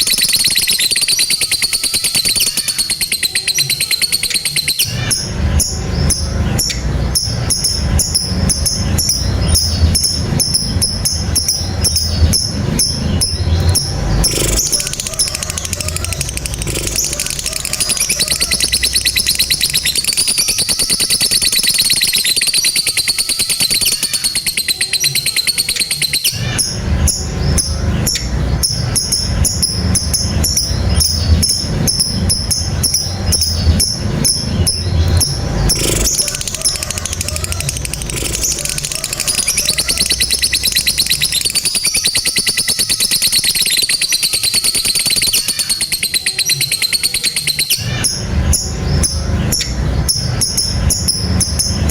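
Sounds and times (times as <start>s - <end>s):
bird high-pitched chattering trill: 0.0s - 51.9s.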